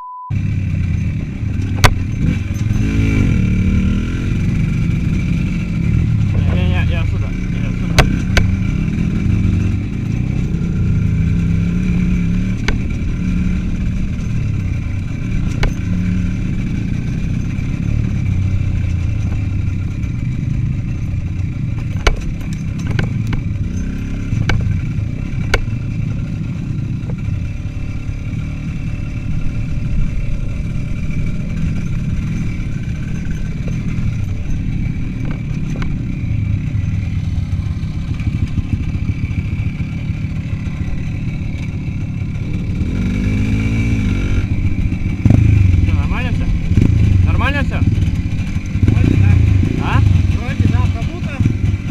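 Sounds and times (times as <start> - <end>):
motorcycle engine running: 0.3 - 51.9
sharp knocks and clatter: 0.9 - 3.4, 7.4 - 27.6, 29.9 - 44.1.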